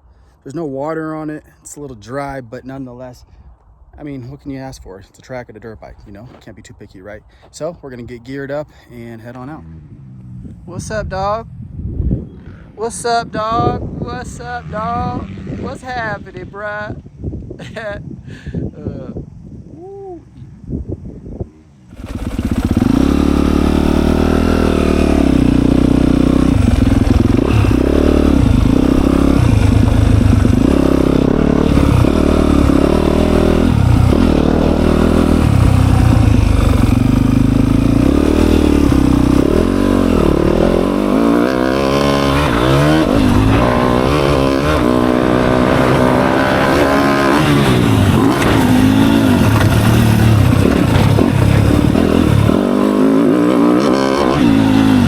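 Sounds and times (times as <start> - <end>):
dirt bike engine revving: 14.0 - 16.2, 21.5 - 55.0.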